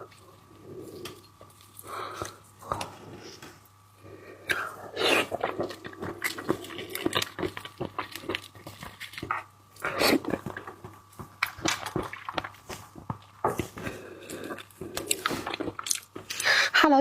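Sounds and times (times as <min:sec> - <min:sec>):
wet eating clicks and smacks: 0:04.5 - 0:16.6.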